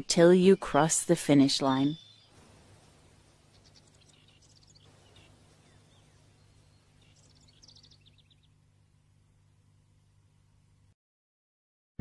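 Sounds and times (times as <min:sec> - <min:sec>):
faint bird chirps: 0:00.0 - 0:08.6
faint low hum: 0:00.0 - 0:11.0.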